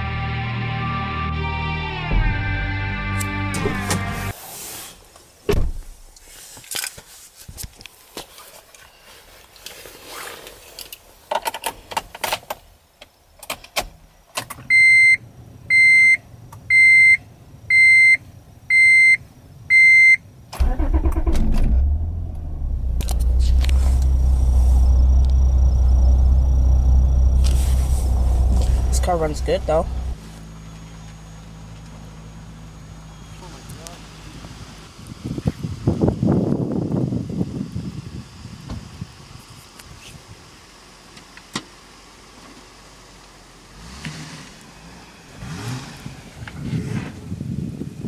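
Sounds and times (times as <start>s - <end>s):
dashboard warning beeps: 14.7s - 20.2s
car engine cranking and starting: 20.5s - 30.2s, 40.8s - 46.7s
car engine idling: 20.6s - 35.0s.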